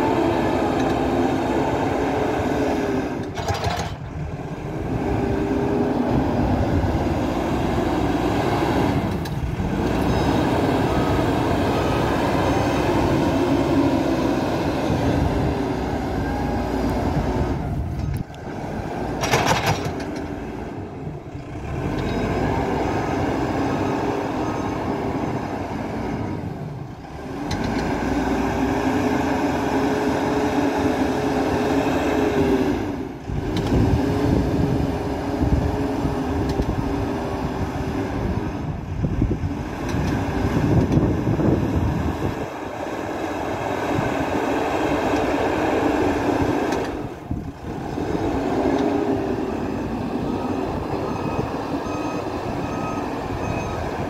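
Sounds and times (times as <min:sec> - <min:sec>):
diesel engine revving: 0:00.0 - 0:54.0.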